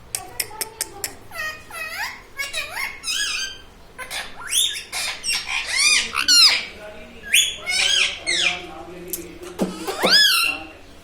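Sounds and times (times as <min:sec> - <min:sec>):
parrot making sharp calls: 0:01.3 - 0:08.6, 0:09.6 - 0:10.6.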